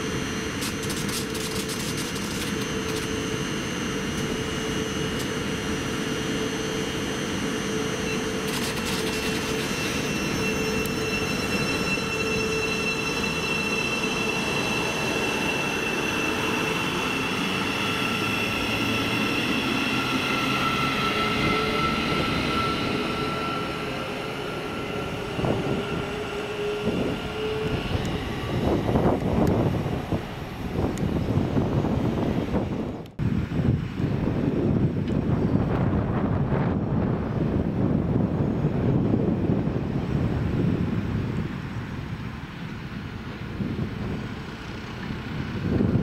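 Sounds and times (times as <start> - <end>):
train running rumble: 0.0 - 5.8, 6.6 - 46.0
held whining tones: 0.0 - 34.0.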